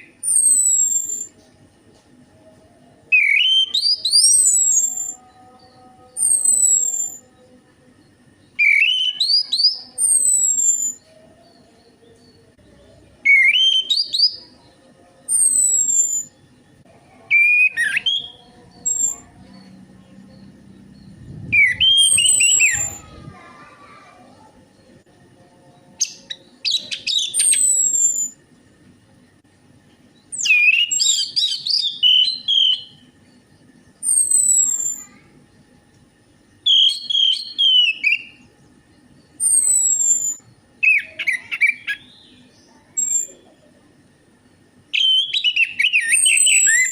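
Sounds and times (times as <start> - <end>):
thrush singing whistled phrases: 0.0 - 1.3, 3.1 - 5.3, 6.1 - 7.3, 8.5 - 11.1, 13.2 - 14.5, 15.2 - 16.4, 17.3 - 19.8, 20.4 - 23.4, 26.0 - 28.4, 30.3 - 33.1, 34.0 - 35.1, 36.6 - 38.4, 39.4 - 42.4, 44.9 - 46.9
thrush singing: 2.5 - 28.4.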